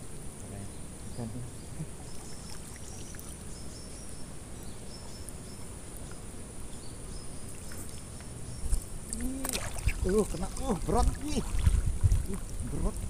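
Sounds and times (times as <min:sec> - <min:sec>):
faint high insect hum: 0:00.0 - 0:13.0
wind rumbling on microphone: 0:08.5 - 0:13.0.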